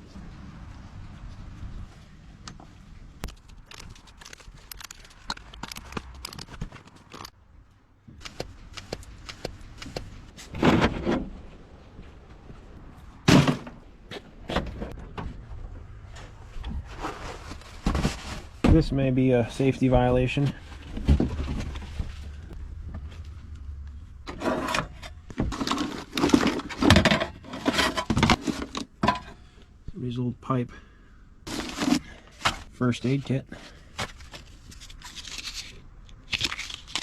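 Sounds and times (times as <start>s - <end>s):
clicks and rattles of hands working: 3.2s - 7.4s.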